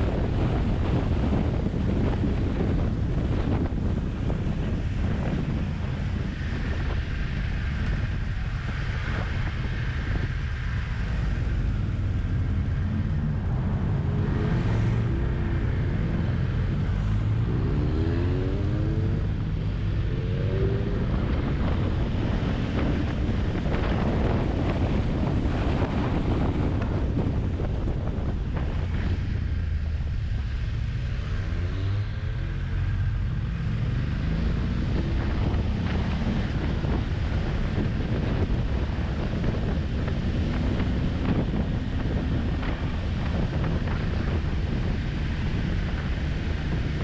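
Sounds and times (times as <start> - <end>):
motorcycle engine accelerating: 0.0 - 47.0
wind rushing over microphone: 0.0 - 47.0.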